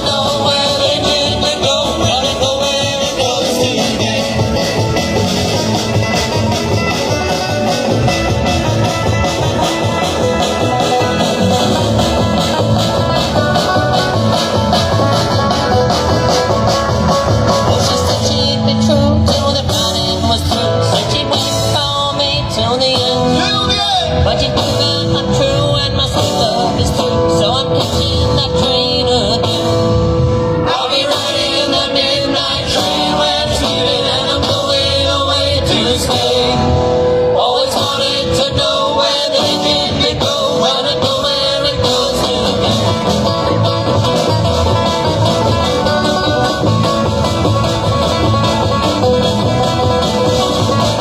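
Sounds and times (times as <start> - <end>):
live rock band playing: 0.0 - 51.0
pulsing bass: 0.0 - 51.0.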